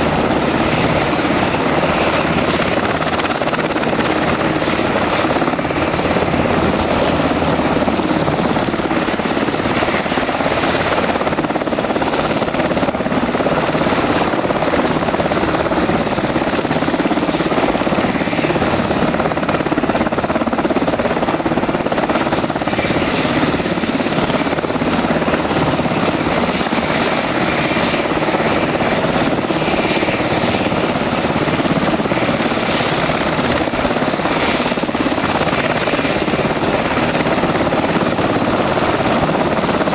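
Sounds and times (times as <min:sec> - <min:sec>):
helicopter engines and rotors: 0:00.0 - 0:39.9.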